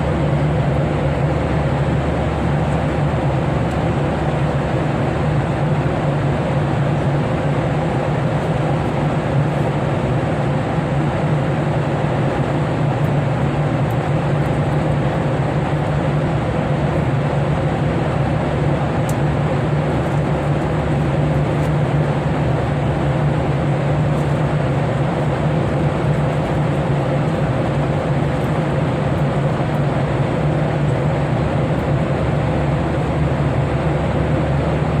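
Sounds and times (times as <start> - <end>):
airliner cabin engine drone: 0.0 - 35.0.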